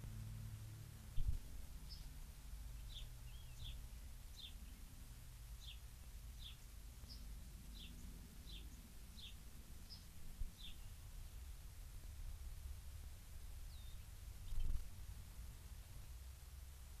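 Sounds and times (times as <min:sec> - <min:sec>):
songbird chip notes: 0:00.0 - 0:11.4
low background rumble: 0:00.0 - 0:17.0.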